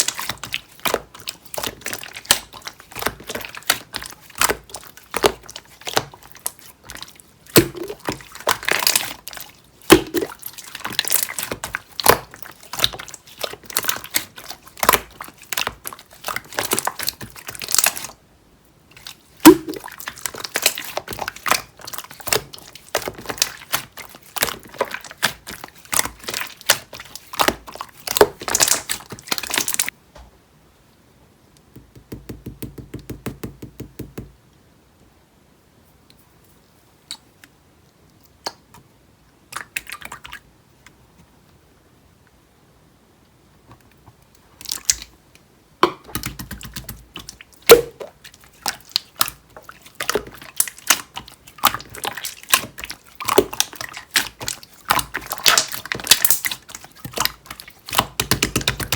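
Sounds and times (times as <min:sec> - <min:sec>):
slime squished by hand: 0:00.0 - 0:18.1, 0:19.0 - 0:29.9, 0:46.1 - 0:58.9.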